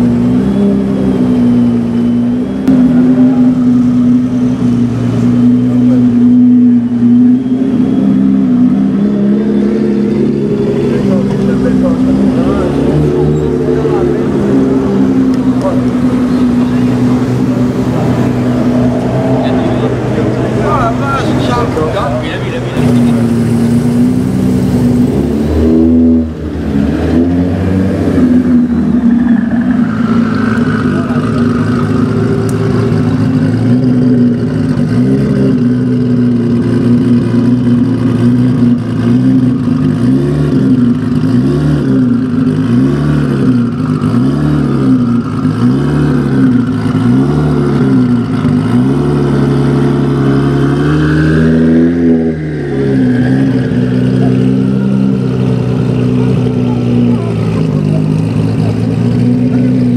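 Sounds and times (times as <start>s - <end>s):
car engine idling and revving: 0.0s - 59.9s.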